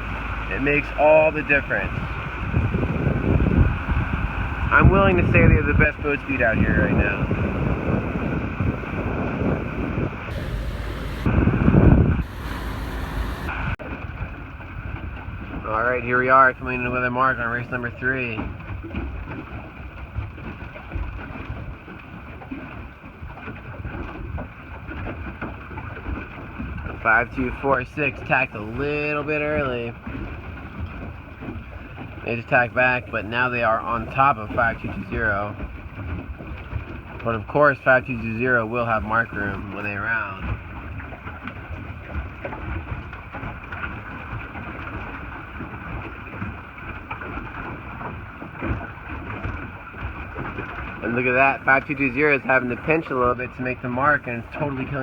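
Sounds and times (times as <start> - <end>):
wind buffeting microphone: 0.0 - 13.8
boat on water: 0.0 - 55.0.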